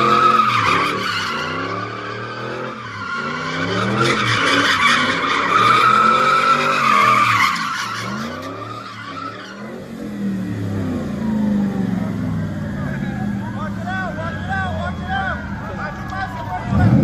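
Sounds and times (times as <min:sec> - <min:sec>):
tyres squealing: 0:00.0 - 0:10.3
car engine revving: 0:00.0 - 0:17.0.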